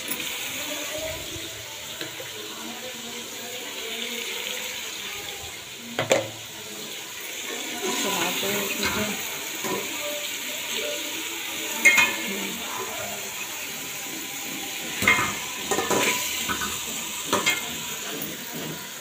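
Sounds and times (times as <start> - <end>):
liver sizzling in oil: 0.0 - 19.0
spatula scraping a pot: 11.8 - 19.0.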